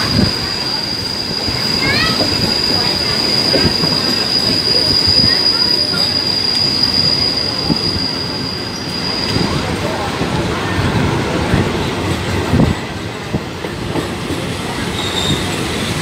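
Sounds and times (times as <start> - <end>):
train wheels rumbling on rail: 0.0 - 16.0
high-pitched wheel squeal: 0.3 - 9.6, 14.9 - 15.6.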